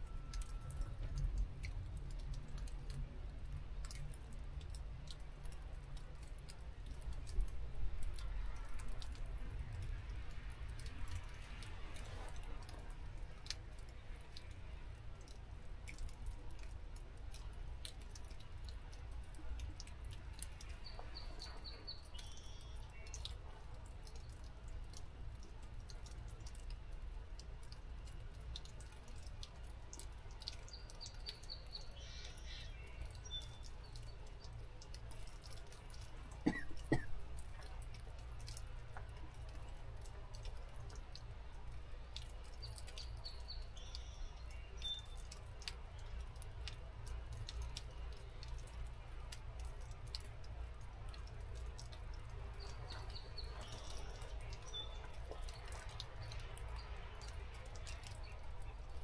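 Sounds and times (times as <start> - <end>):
faint ticks: 0.1 - 59.0
forest birds calling: 20.7 - 23.2, 30.7 - 34.1.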